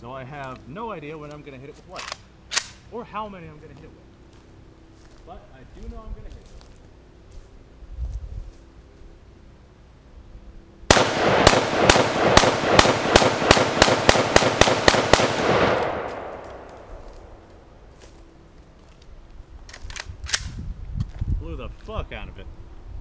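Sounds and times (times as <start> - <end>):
rifle fired rapidly: 10.9 - 16.6.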